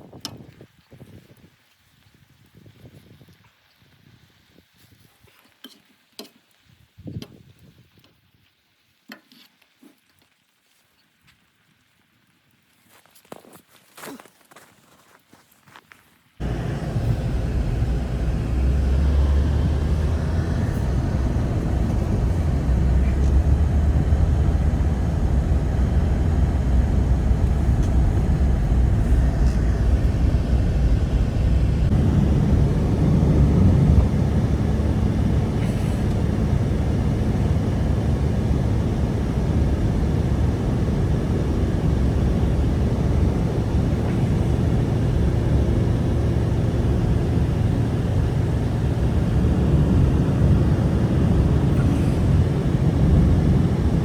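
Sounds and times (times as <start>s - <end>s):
strong blizzard wind: 16.4s - 54.0s.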